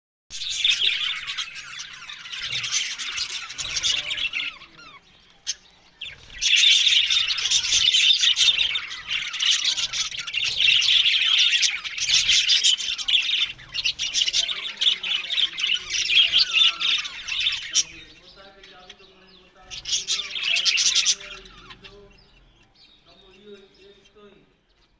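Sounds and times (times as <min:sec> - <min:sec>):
budgerigars chattering: 0:00.3 - 0:24.9.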